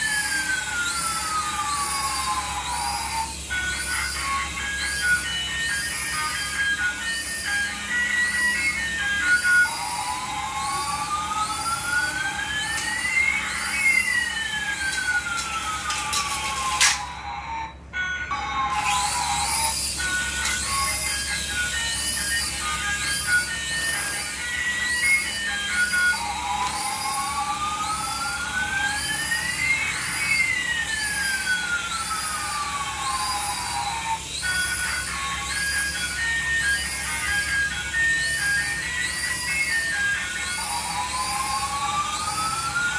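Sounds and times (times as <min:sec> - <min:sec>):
electronic warbling siren tone: 0:00.0 - 0:42.9
steady electronic tone: 0:00.1 - 0:17.8.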